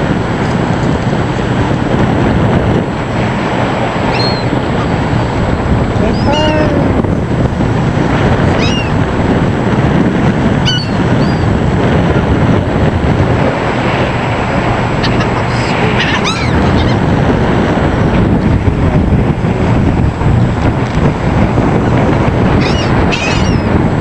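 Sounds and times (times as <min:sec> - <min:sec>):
water rushing: 0:00.0 - 0:24.0
wind: 0:00.0 - 0:24.0
gulls crying: 0:03.0 - 0:07.2, 0:08.2 - 0:09.5, 0:10.5 - 0:12.7, 0:13.4 - 0:17.6, 0:21.6 - 0:24.0.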